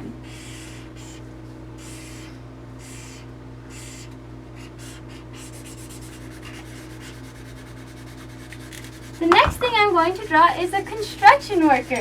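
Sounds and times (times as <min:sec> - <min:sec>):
low electrical hum: 0:00.0 - 0:12.0
pencil scratching on paper: 0:11.0 - 0:12.0.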